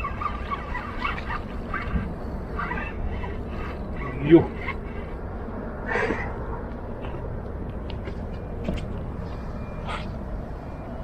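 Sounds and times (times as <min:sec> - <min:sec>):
high-pitched calls: 0:00.0 - 0:05.0.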